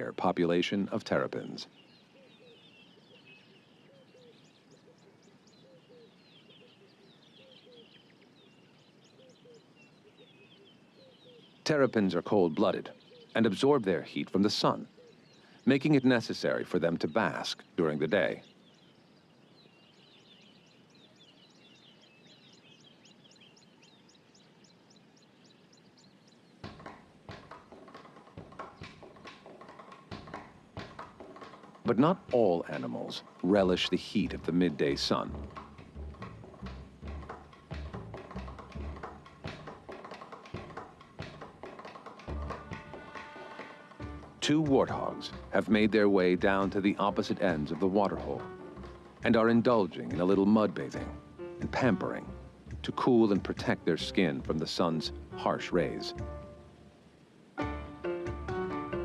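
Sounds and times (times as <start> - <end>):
birds chirping and whistling: 0.0 - 56.7
faint outdoor ambience: 0.0 - 59.0
sharp knocks and taps: 26.6 - 33.8, 35.3 - 45.5.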